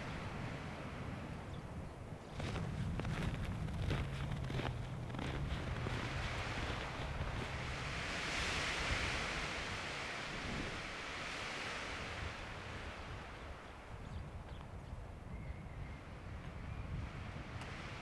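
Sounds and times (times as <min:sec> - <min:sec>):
gust of wind: 0:00.0 - 0:14.2.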